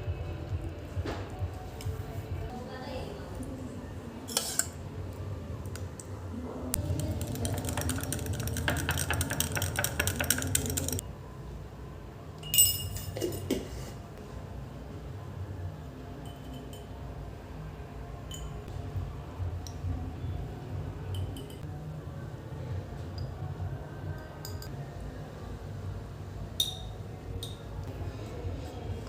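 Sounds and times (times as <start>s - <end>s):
utensil scraping and stirring clicks: 6.8s - 11.0s
dishes clinking: 12.4s - 13.8s.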